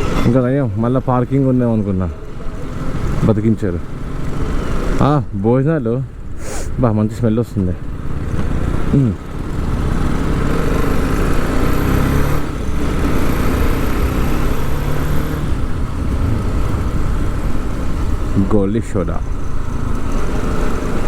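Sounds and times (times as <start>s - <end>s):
road rumble: 0.0s - 21.0s
motorcycle engine running: 2.1s - 5.0s, 7.6s - 21.0s.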